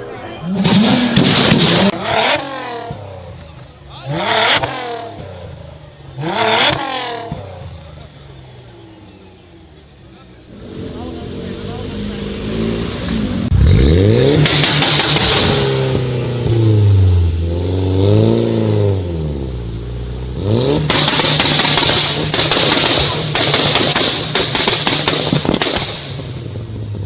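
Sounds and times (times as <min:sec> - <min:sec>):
car engine revving: 0:00.0 - 0:27.0
exhaust pops and bangs: 0:00.5 - 0:03.7, 0:14.3 - 0:16.2, 0:20.8 - 0:27.0.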